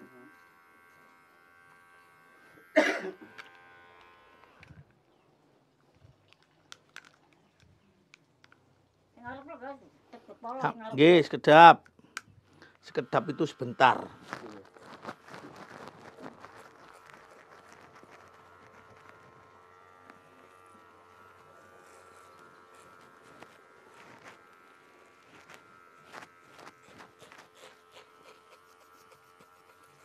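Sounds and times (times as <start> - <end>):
faint electric buzz: 0.0 - 5.2, 9.1 - 30.0
footsteps: 14.0 - 20.3.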